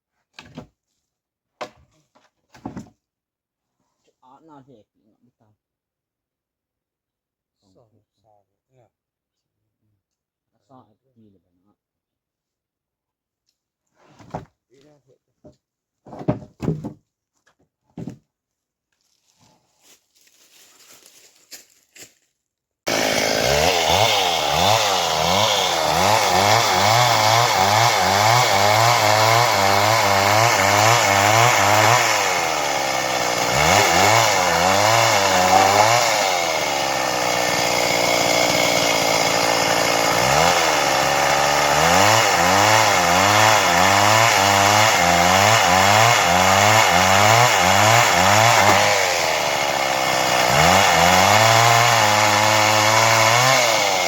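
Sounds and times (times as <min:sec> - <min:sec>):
chainsaw cutting wood: 0:16.1 - 0:17.0, 0:22.9 - 0:54.0.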